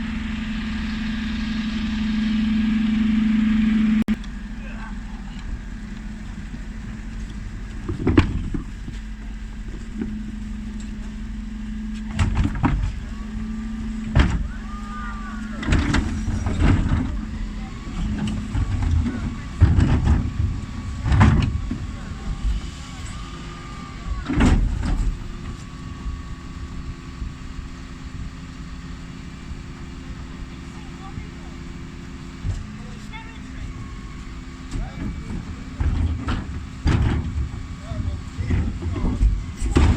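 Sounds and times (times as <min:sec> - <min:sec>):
bin lorry engine humming: 0:00.0 - 0:39.9
sharp clunks: 0:05.3 - 0:23.4, 0:24.0 - 0:26.2, 0:33.8 - 0:37.7.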